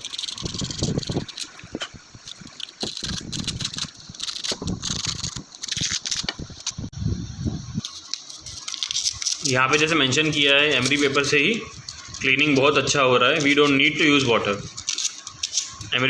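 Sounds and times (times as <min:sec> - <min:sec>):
sandpaper scratching on metal: 0:07.8 - 0:16.0.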